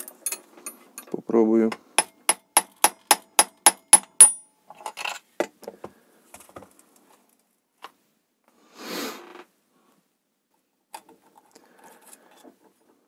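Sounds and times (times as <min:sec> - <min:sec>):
small metal clinks and clatter: 0:00.0 - 0:01.2
hammer tapping on metal: 0:02.0 - 0:04.4.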